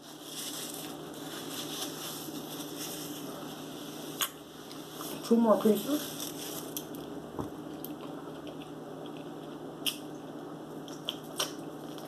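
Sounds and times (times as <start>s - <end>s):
person chewing food: 6.6s - 12.0s
wet mouth smacks and clicks: 7.8s - 10.1s, 10.9s - 11.6s.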